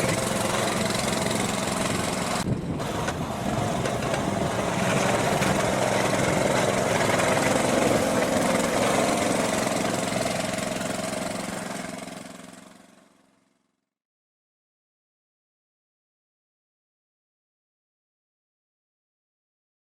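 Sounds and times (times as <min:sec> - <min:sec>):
small engine running: 0:00.0 - 0:13.9.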